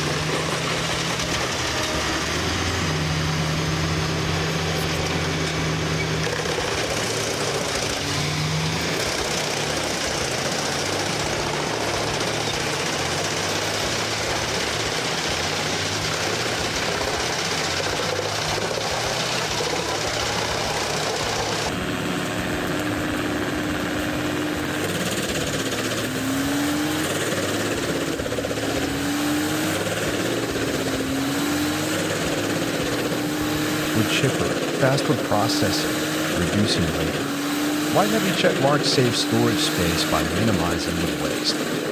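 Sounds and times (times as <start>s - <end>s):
wood chipper running: 0.0s - 41.9s.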